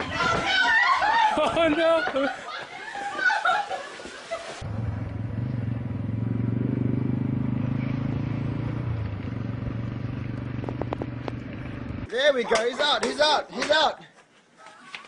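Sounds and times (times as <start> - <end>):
vehicle engine humming: 4.6 - 12.1.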